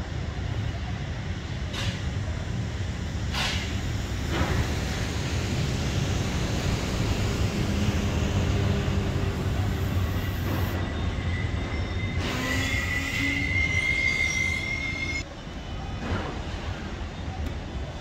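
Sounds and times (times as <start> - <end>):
train rumbling on rails: 0.0 - 18.0
high wheel squeal: 8.4 - 15.2.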